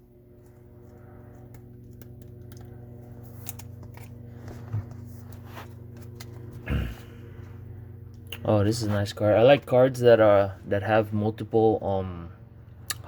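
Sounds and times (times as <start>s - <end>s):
steady low hum: 0.0s - 13.0s
cards being flipped through: 1.4s - 6.6s.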